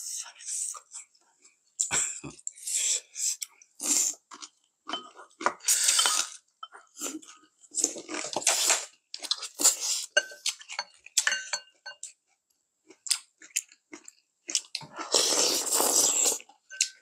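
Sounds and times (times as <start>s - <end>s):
chewing and crunching: 3.8s - 11.3s, 12.0s - 17.0s
chopsticks and spoons clinking bowls: 4.3s - 7.4s, 8.0s - 12.2s, 16.7s - 17.0s.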